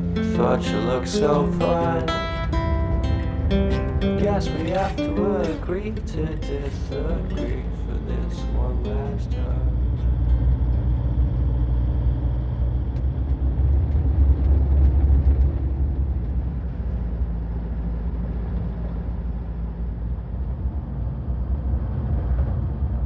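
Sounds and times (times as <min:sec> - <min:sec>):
vehicle rumble inside cabin: 0:00.0 - 0:23.0.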